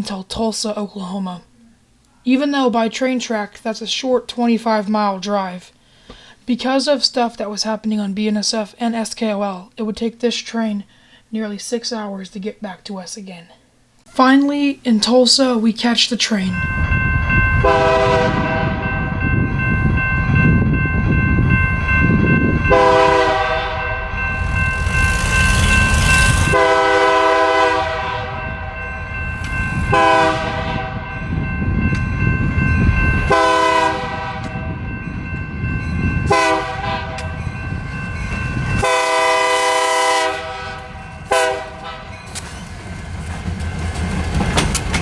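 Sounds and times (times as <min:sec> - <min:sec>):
low rumble of passing train: 0:15.6 - 0:45.0
locomotive air horn blasts: 0:17.6 - 0:19.0, 0:22.7 - 0:24.3, 0:26.3 - 0:28.8, 0:29.9 - 0:31.1, 0:33.3 - 0:34.7, 0:36.3 - 0:37.3, 0:38.8 - 0:42.1.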